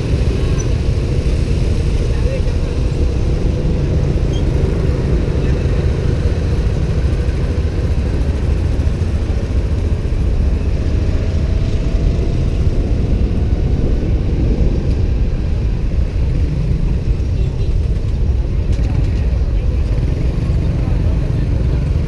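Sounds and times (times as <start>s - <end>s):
motorbike engine and road noise: 0.0s - 22.0s
wind rumble on microphone: 0.0s - 22.0s.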